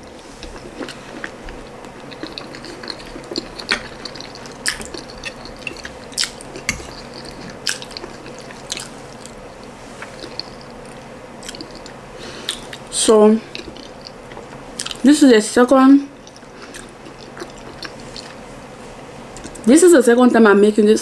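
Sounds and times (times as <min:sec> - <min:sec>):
wet chewing with smacks: 0:00.4 - 0:09.4, 0:10.0 - 0:12.9, 0:16.2 - 0:18.4.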